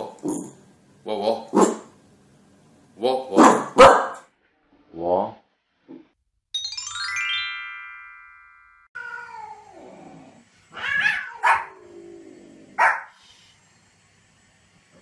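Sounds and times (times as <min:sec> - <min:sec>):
dog barking: 0:01.6 - 0:01.9, 0:03.4 - 0:04.3, 0:11.0 - 0:11.8, 0:12.8 - 0:13.2
descending chime: 0:06.5 - 0:09.0
cat meowing: 0:09.0 - 0:09.9, 0:10.7 - 0:11.7.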